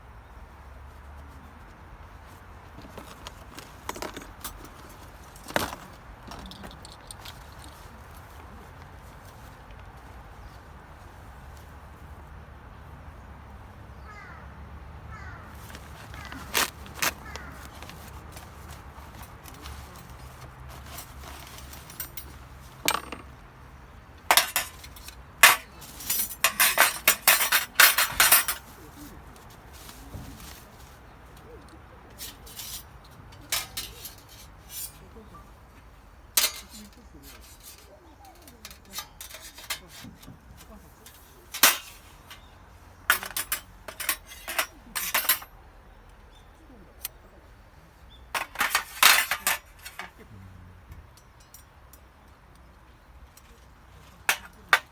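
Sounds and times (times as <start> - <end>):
hard items clinking and knocking: 2.7 - 8.2, 15.6 - 23.5, 24.2 - 28.8, 32.2 - 35.0, 36.4 - 45.5, 48.3 - 50.2, 54.2 - 54.9.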